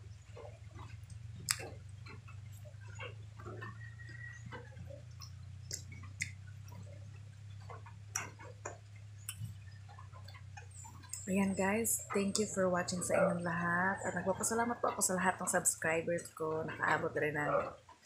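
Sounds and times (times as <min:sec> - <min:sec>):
steady low hum: 0:00.0 - 0:18.0
wet chewing and lip smacks: 0:00.0 - 0:18.0
sharp mouth clicks: 0:00.8 - 0:02.2, 0:04.5 - 0:07.0, 0:08.1 - 0:11.5.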